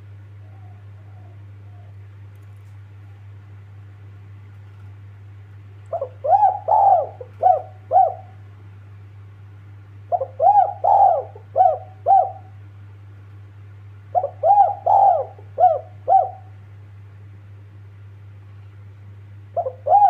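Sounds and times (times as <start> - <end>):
steady low hum: 0.0 - 20.0
dove cooing: 0.3 - 2.1, 5.9 - 8.5, 10.1 - 12.6, 14.1 - 16.6, 19.5 - 20.0.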